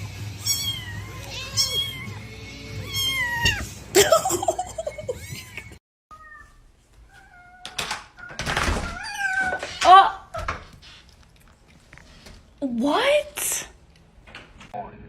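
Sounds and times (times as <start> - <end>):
cats meowing: 0.2 - 3.8, 5.2 - 10.7.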